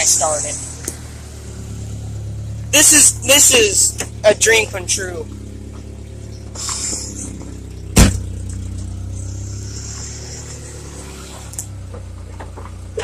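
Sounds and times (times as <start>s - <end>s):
car engine idling: 0.0s - 13.0s
loud thump: 7.9s - 8.6s.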